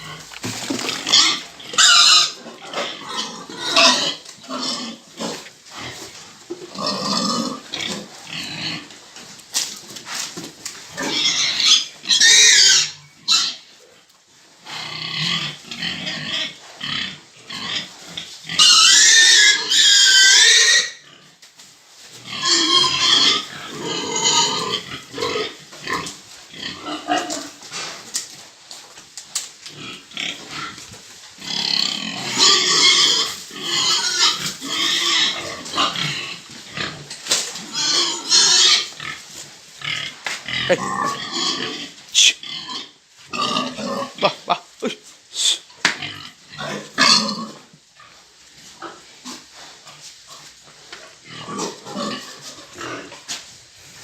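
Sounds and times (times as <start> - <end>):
pigs squealing: 0.0 - 6.0, 6.7 - 8.9, 10.9 - 13.7, 14.7 - 21.3, 22.2 - 27.6, 31.4 - 39.2, 39.8 - 47.7, 51.3 - 53.2
pigs grunting: 0.0 - 9.0, 22.2 - 28.1, 29.7 - 39.2, 39.8 - 53.4.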